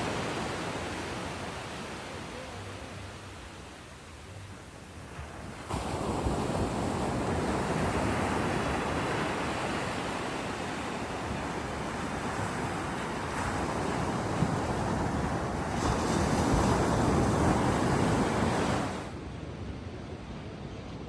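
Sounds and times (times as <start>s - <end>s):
ocean surf washing ashore: 0.0s - 21.0s.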